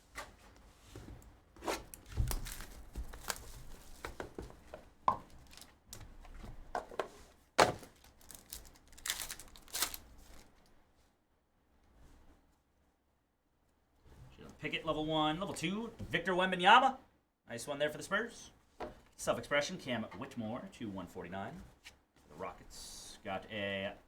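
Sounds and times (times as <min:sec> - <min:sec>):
card packs tearing and crinkling: 0:02.0 - 0:04.0, 0:05.4 - 0:05.7, 0:07.6 - 0:10.5.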